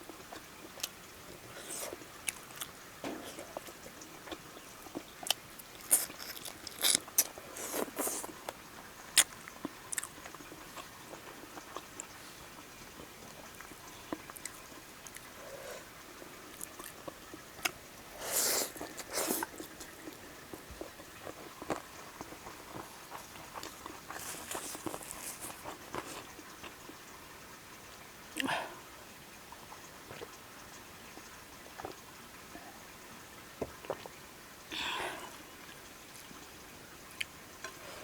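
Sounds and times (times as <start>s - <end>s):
person chewing food: 0.1s - 27.0s, 33.8s - 34.1s.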